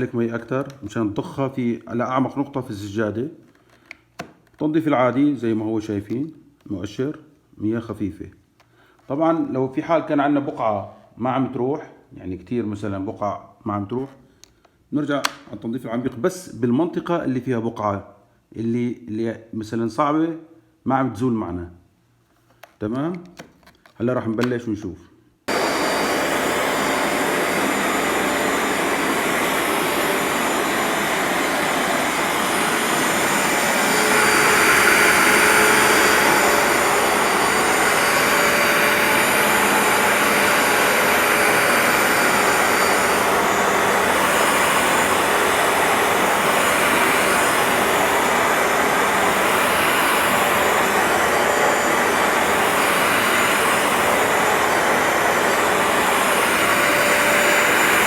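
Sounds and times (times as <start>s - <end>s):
carpet cleaner motor droning: 25.5s - 58.0s.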